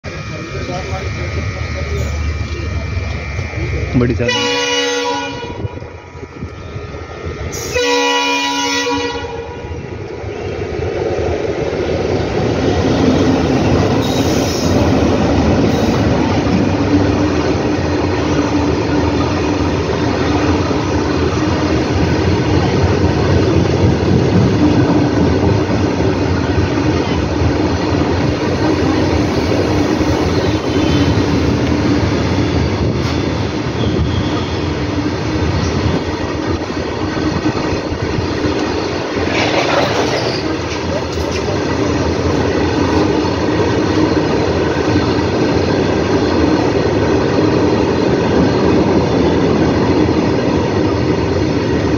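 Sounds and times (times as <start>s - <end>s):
diesel locomotive horn: 0.1s - 9.8s, 14.0s - 14.8s, 29.2s - 31.6s, 33.7s - 34.9s
train wheels running over rails: 5.4s - 51.9s.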